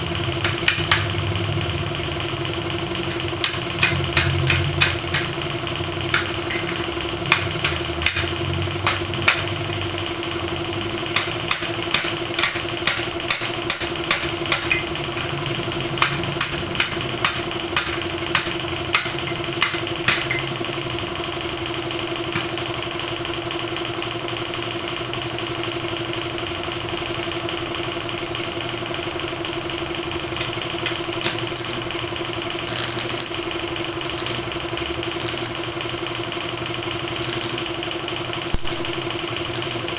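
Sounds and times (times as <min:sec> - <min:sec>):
machine humming: 0:00.0 - 0:23.8, 0:27.6 - 0:39.9
sharp irregular clicks: 0:00.4 - 0:01.3, 0:03.0 - 0:09.7, 0:11.1 - 0:20.5, 0:32.6 - 0:35.8, 0:37.0 - 0:39.9.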